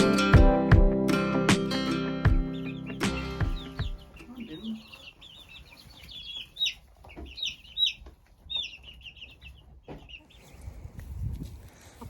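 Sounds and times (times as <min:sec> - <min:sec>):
chicks peeping: 0:02.2 - 0:12.0.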